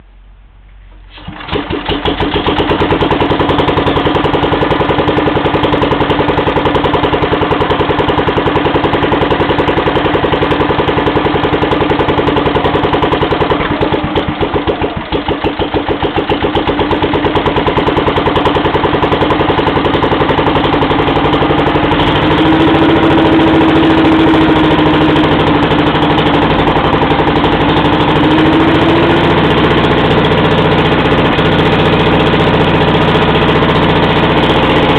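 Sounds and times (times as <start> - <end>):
petrol engine starting and running: 0.0 - 34.9.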